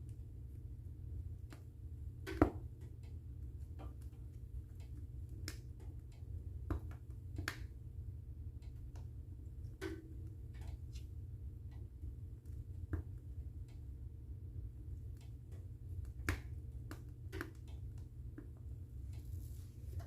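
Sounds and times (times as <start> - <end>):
wood fire crackling and popping: 1.4 - 7.8, 14.9 - 18.5.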